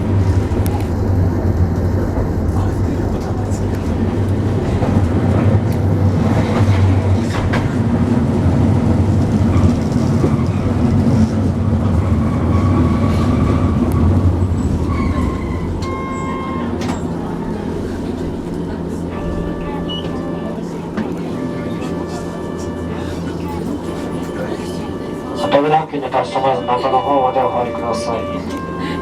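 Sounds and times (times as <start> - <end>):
tram wheels and motors rumbling: 0.0 - 29.0
short tone: 15.0 - 17.0.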